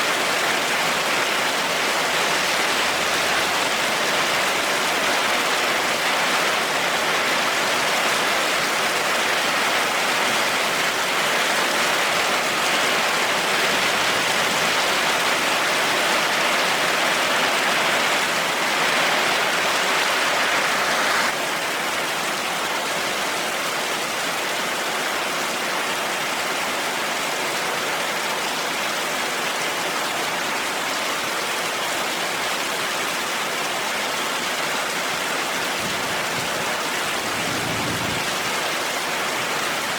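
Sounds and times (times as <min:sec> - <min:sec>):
heavy rain hissing: 0:00.6 - 0:21.4.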